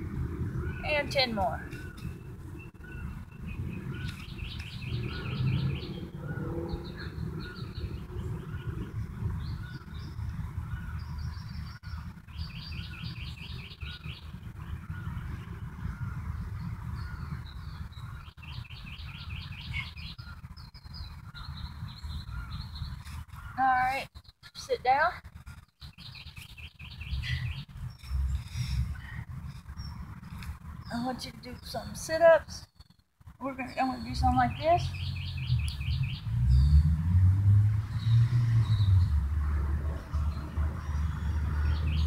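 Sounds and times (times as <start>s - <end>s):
repeated short bird notes: 0.6s - 36.8s
songbird trilling: 30.9s - 36.2s.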